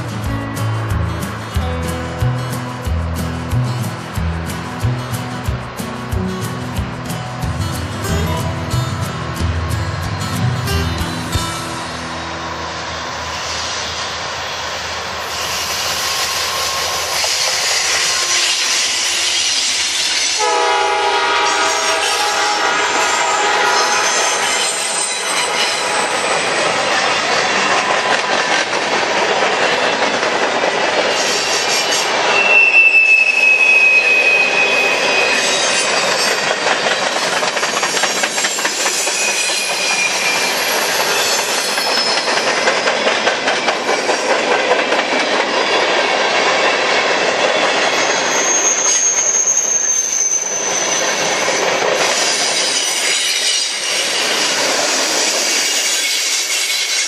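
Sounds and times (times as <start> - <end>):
freight train wheels rumbling: 0.0 - 57.0
high-pitched wheel squeal: 15.2 - 20.4, 21.4 - 26.8, 31.1 - 43.2, 47.8 - 57.0.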